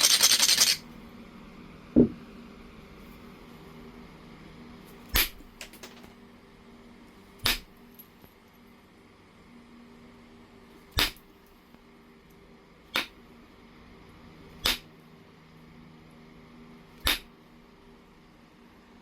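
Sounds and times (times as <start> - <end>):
stone knapping clicks: 17.0 - 17.3.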